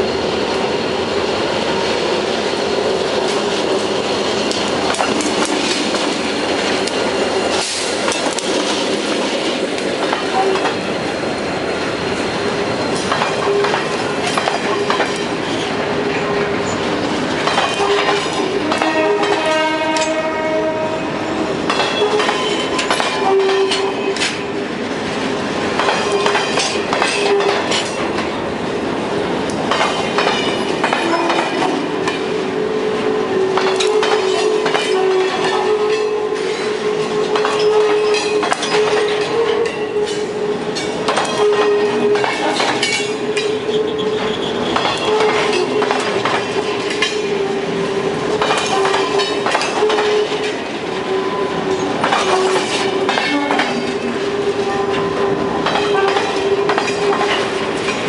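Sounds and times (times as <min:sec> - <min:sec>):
rumble of train wagons: 0:00.0 - 0:58.0
wheels clicking over rail joints: 0:04.3 - 0:10.8, 0:12.9 - 0:15.7, 0:16.6 - 0:20.2, 0:21.6 - 0:24.4, 0:25.7 - 0:28.4, 0:29.4 - 0:32.2, 0:33.5 - 0:47.5, 0:48.1 - 0:50.9, 0:51.6 - 0:55.0, 0:55.6 - 0:58.0
wheel squeal: 0:42.8 - 0:46.0.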